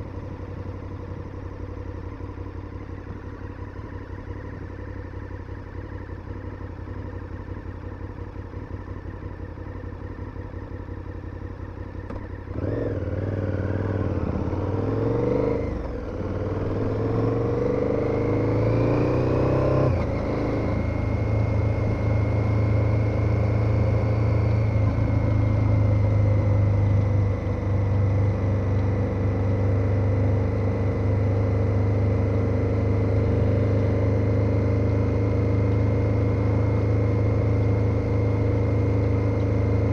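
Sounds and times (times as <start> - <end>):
motorcycle engine revving: 11.4 - 39.9.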